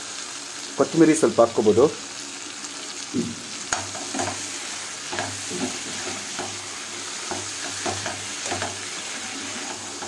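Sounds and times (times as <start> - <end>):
chicken sizzling in oil: 0.0 - 10.0
steel ladle scraping a pan: 3.7 - 10.0.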